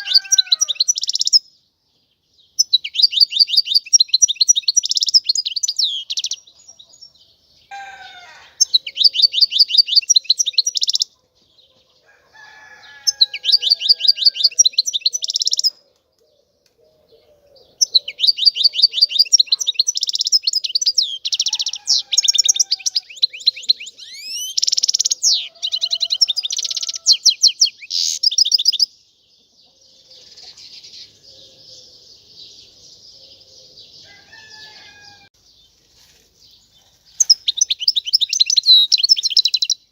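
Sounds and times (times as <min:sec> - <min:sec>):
finch singing trilled notes: 0:02.6 - 0:06.5, 0:08.6 - 0:11.1, 0:17.7 - 0:28.9, 0:37.1 - 0:39.9.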